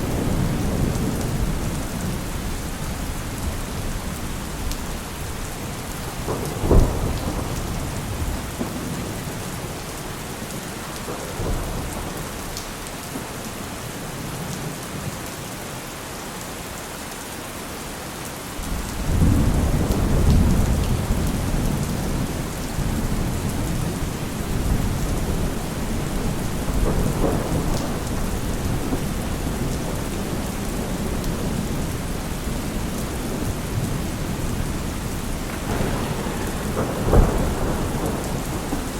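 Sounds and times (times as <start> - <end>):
sharp crack of thunder: 0.0 - 4.7, 5.9 - 10.1, 18.7 - 38.9
low thunder rumble: 0.0 - 10.2, 18.6 - 38.9
heavy rain falling: 0.0 - 38.9.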